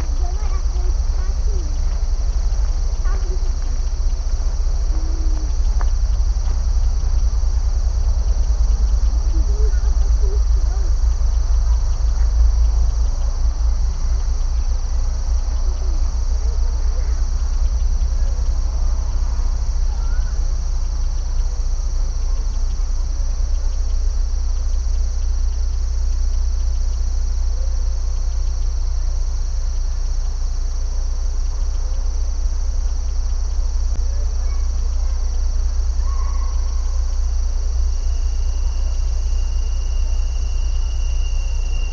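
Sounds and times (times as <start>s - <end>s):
insects chirping: 0.0s - 41.9s
low rumble: 0.0s - 41.9s
faint short calls: 34.0s - 41.9s.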